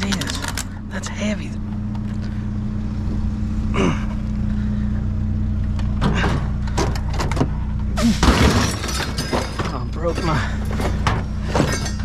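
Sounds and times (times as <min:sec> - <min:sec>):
engine idling: 0:00.0 - 0:12.0
scrap metal clattering: 0:06.0 - 0:12.0.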